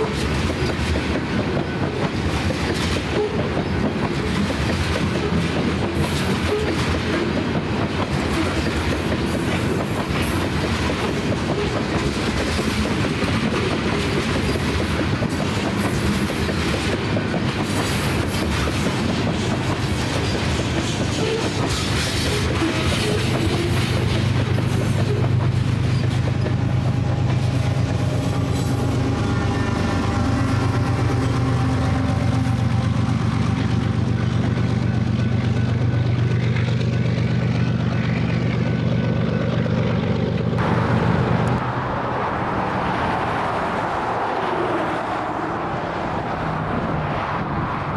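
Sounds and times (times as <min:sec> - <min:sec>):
train wheels clickety-clack: 0:00.0 - 0:40.6
diesel engine drone: 0:25.6 - 0:47.9.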